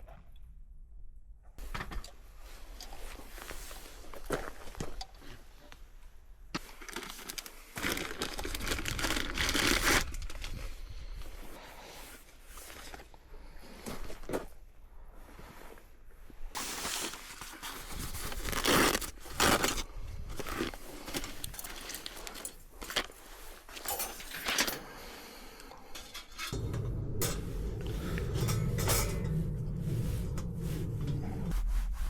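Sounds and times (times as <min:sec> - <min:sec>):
camping gear scraping and rustling: 0:02.2 - 0:05.6, 0:06.7 - 0:25.2
low rumbling noise: 0:26.5 - 0:32.0.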